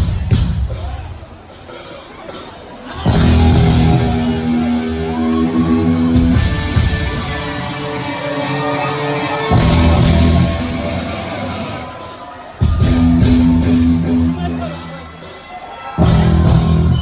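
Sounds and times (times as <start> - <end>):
cymbals washing: 0.1 - 17.0
heavy rock band playing: 2.8 - 15.4, 16.0 - 17.0
guitar and bass chords: 3.0 - 12.0, 12.8 - 14.6.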